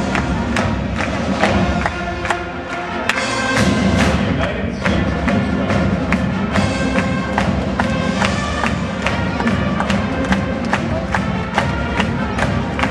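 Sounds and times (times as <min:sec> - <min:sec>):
brass chords: 0:00.0 - 0:12.9
steady drum beat: 0:03.1 - 0:12.9.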